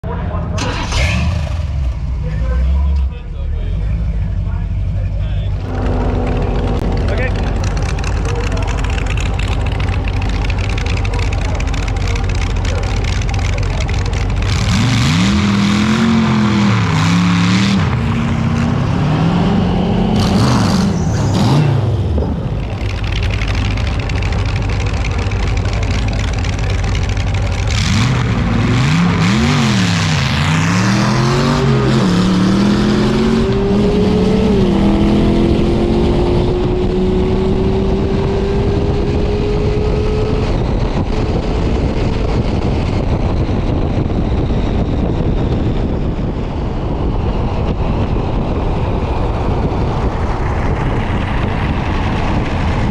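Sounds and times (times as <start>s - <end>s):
racing car engine revving: 5.4s - 41.7s.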